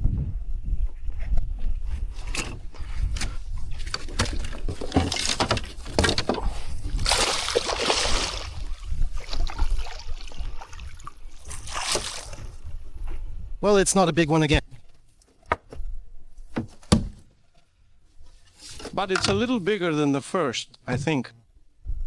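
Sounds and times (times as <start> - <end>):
water splashing and sloshing: 3.2 - 13.0.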